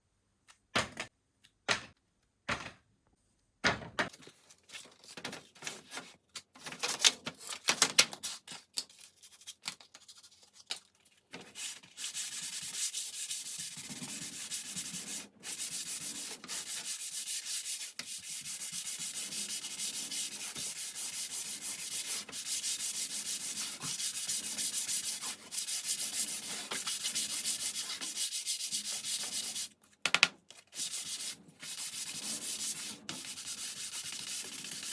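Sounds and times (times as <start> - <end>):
scratchy rubbing on wood: 12.0 - 29.7, 30.8 - 34.9.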